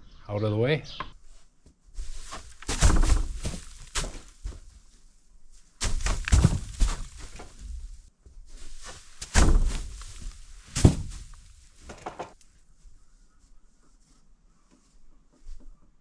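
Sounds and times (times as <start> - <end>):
heavy thuds and knocks: 2.0 - 4.8, 5.8 - 12.4.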